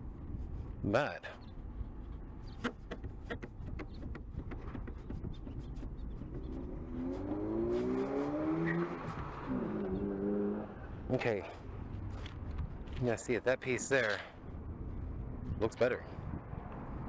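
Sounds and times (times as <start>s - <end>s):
vehicle engine accelerating: 6.3s - 11.0s.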